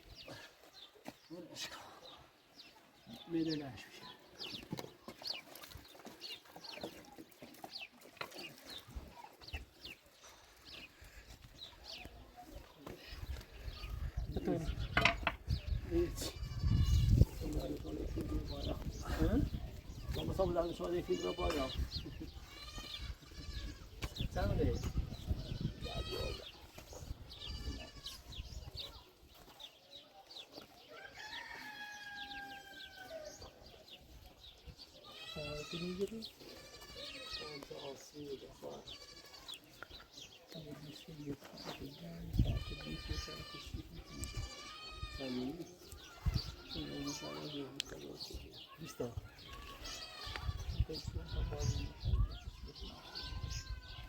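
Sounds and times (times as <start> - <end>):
rooster crowing: 31.0 - 33.0.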